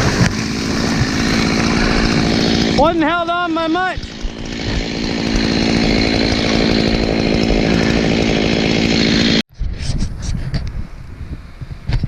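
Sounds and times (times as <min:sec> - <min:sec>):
chainsaw running: 0:00.0 - 0:09.4
wind noise: 0:09.5 - 0:12.0.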